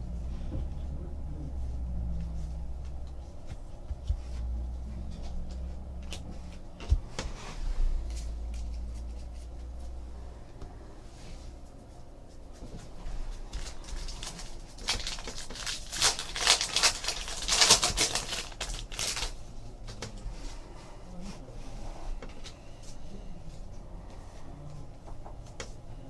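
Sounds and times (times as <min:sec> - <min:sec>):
foil wrapper crinkling: 0:13.5 - 0:19.4
cards clicking and rustling: 0:13.6 - 0:20.2.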